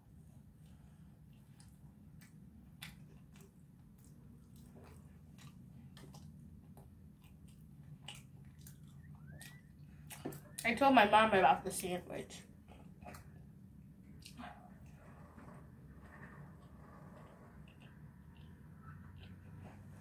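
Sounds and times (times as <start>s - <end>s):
low steady room hum: 0.0s - 20.0s
person chewing: 0.6s - 10.6s.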